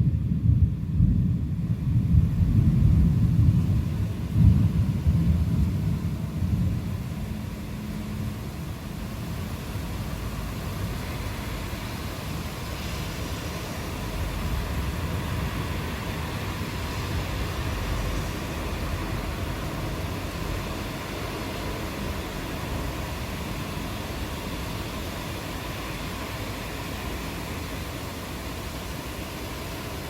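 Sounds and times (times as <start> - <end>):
distant thunder rumble: 0.0 - 8.0
rain falling: 0.1 - 30.0.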